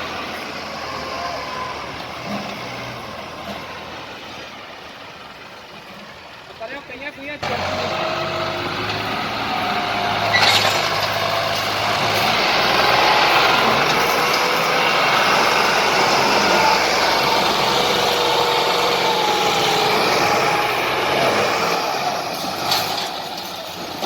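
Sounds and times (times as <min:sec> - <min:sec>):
loud mechanical engine noise: 0:00.0 - 0:06.5, 0:07.4 - 0:24.0.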